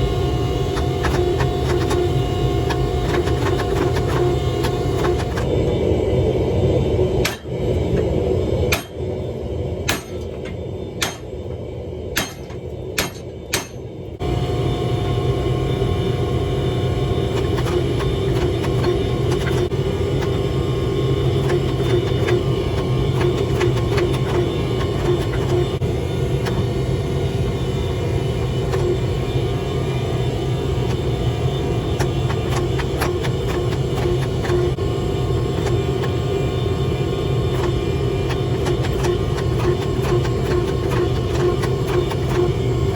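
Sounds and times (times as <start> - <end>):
low mechanical rumble: 0.0 - 42.9
hammer striking steel on anvil: 7.2 - 7.5, 8.7 - 9.0, 9.8 - 11.4, 12.1 - 13.9.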